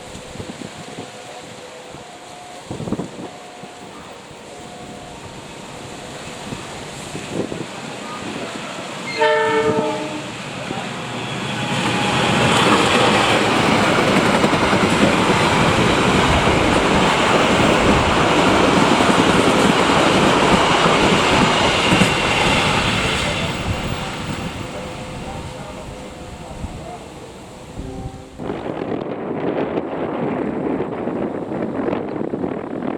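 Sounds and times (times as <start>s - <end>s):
train wheels rushing on rails: 0.0s - 32.9s
train horn blast: 8.2s - 12.7s, 22.9s - 28.9s.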